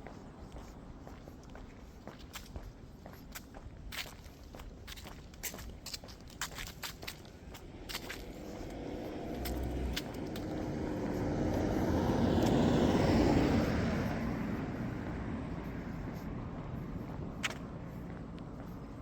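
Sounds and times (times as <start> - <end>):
vehicle passing by: 7.4 - 19.0.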